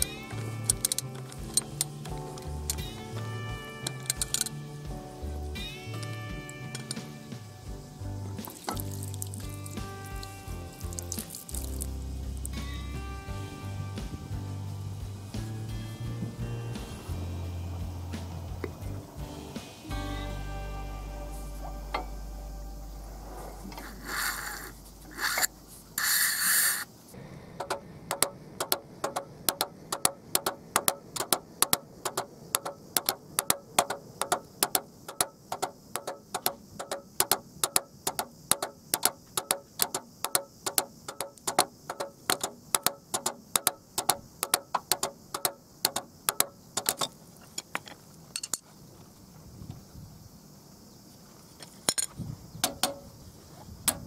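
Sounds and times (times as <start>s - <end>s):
ratchet wrench clicking: 0.0s - 2.9s, 3.9s - 4.6s, 23.8s - 26.9s
metal scrapes: 22.8s - 27.0s.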